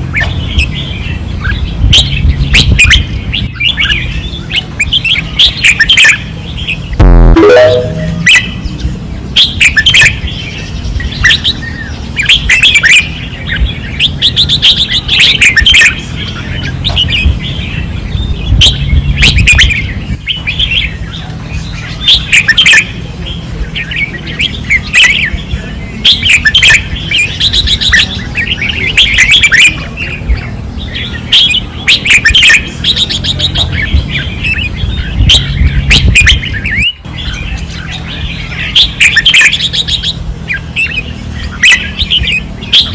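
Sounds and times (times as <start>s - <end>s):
birds singing warbling phrases: 0.0s - 42.9s
low rumble: 7.0s - 7.4s.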